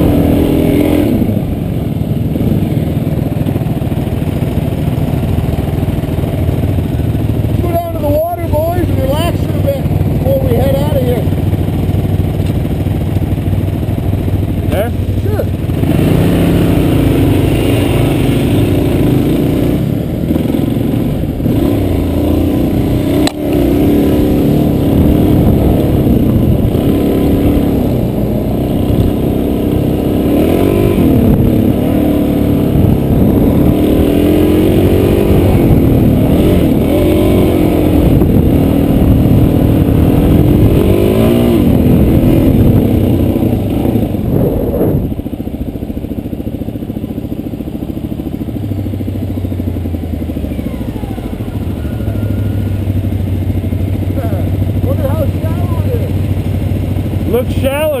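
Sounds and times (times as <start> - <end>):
motorcycle engine revving: 0.0 - 58.0
sharp click: 23.2 - 23.4.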